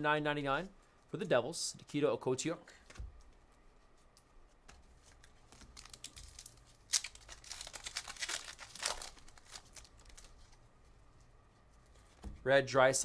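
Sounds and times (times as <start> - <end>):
wrapper tearing and crinkling: 5.2 - 10.6.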